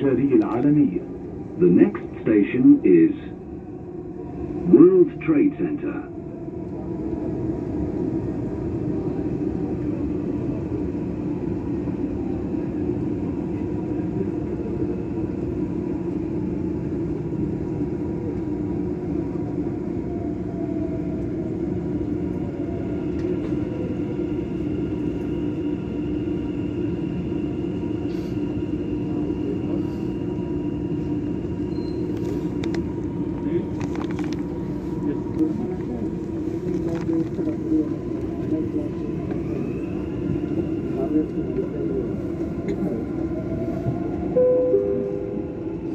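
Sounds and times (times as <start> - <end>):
train wheels rumbling on rail: 6.1 - 45.9
faint whining tones: 17.8 - 45.9.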